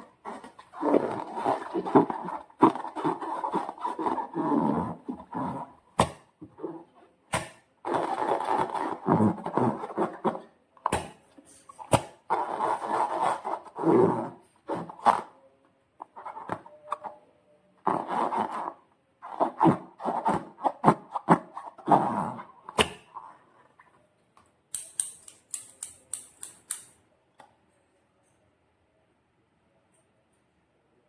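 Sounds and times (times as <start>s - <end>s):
sharp clicks: 24.7s - 27.0s.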